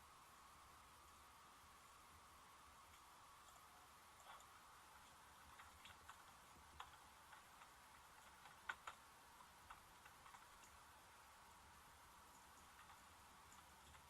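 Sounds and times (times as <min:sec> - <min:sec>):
faint background hiss: 0:00.0 - 0:14.0
small irregular clicks: 0:02.8 - 0:14.0.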